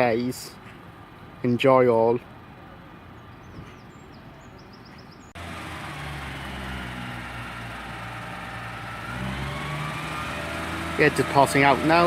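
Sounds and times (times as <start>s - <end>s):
train diesel engine running: 5.4s - 12.0s.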